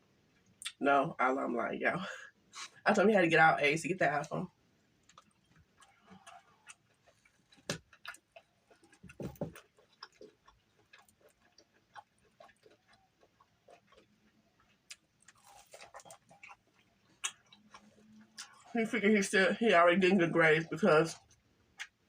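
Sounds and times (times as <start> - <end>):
person chewing food: 4.9 - 18.8, 21.2 - 22.0.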